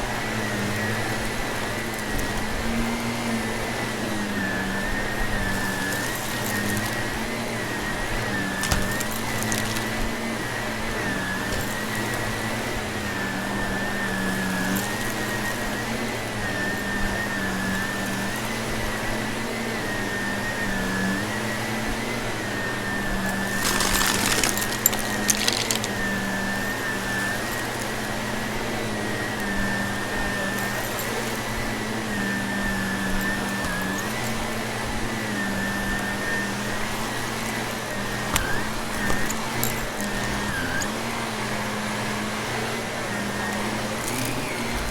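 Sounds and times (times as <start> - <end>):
vacuum cleaner running: 0.0 - 44.9
debris crackling and rattling: 8.6 - 10.0, 23.3 - 26.4.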